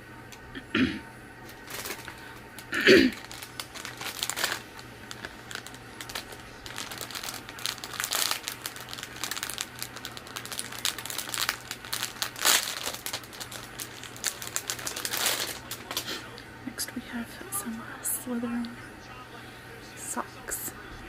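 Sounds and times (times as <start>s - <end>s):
faint low hum: 0.0s - 21.0s
packaging crinkling and rustling: 1.4s - 16.4s.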